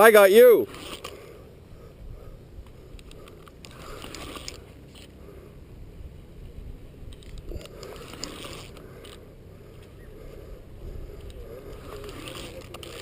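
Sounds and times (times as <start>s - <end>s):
fishing reel whirring and clicking: 0.0s - 1.4s, 2.9s - 5.1s, 7.1s - 9.2s, 11.1s - 13.0s.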